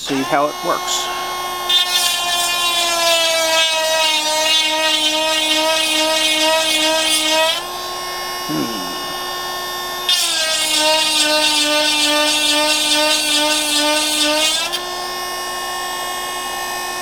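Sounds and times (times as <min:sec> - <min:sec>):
grinding stone on saw chain: 0:00.0 - 0:07.6
small electric motor spinning: 0:00.0 - 0:17.0.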